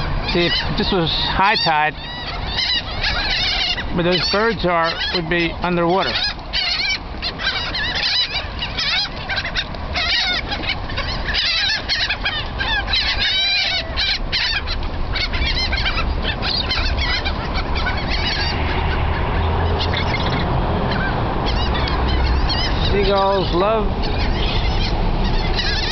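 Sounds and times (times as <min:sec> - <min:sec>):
low steady rumble: 0:00.0 - 0:25.9
seagulls squawking: 0:00.0 - 0:25.9.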